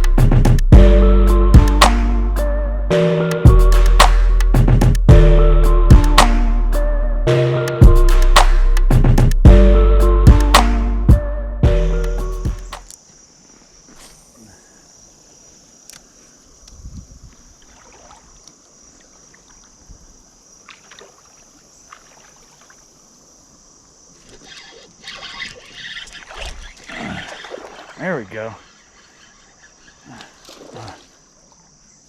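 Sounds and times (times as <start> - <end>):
steady high hiss: 12.2 - 17.6, 21.3 - 25.0
creek water running: 13.2 - 32.0
small splashes and knocks: 17.3 - 19.9, 20.6 - 23.0, 25.3 - 28.0, 30.2 - 31.5.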